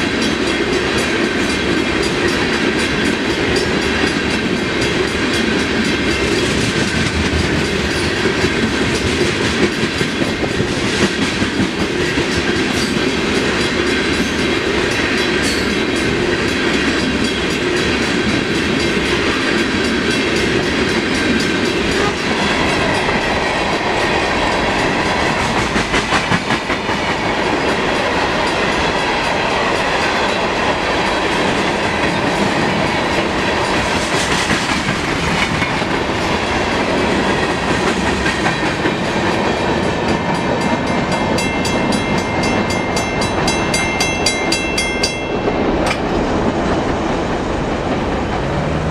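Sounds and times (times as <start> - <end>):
train wheels clicking over rail joints: 0.0 - 48.9.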